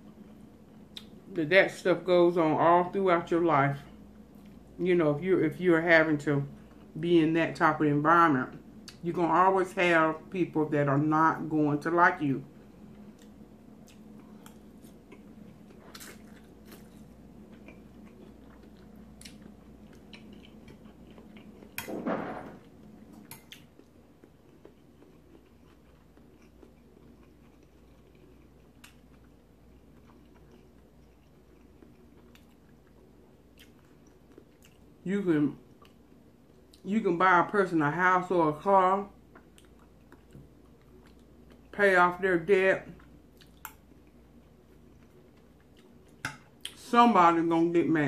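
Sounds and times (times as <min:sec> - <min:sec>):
person chewing: 0:12.8 - 0:21.9, 0:22.5 - 0:35.0, 0:39.2 - 0:41.8, 0:42.9 - 0:46.8.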